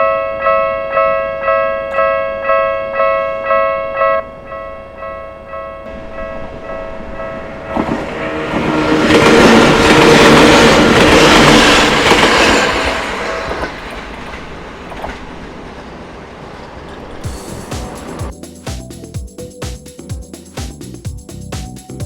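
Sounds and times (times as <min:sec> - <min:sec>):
crossing alarm tones: 0:00.0 - 0:18.3
train wheels clattering on rails: 0:06.6 - 0:18.3.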